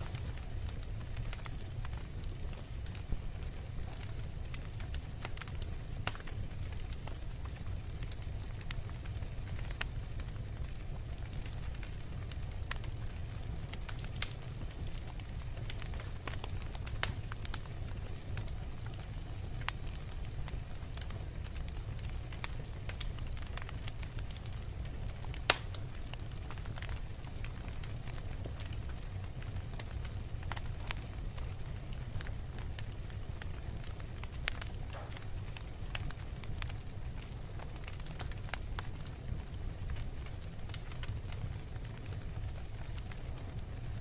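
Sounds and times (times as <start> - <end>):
fire crackles: 0.0 - 44.0
fire rumbling: 0.0 - 44.0
loud snap of burning log: 8.6 - 12.9, 13.7 - 20.3, 25.2 - 31.0, 31.8 - 43.2.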